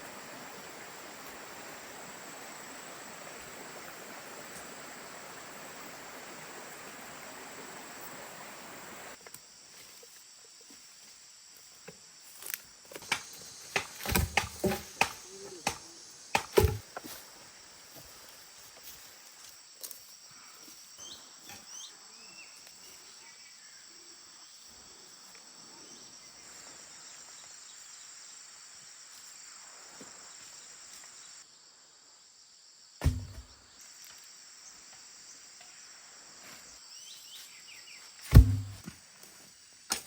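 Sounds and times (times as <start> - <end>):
insects chorus: 0.0 - 40.0
loud knocks: 38.3 - 38.8.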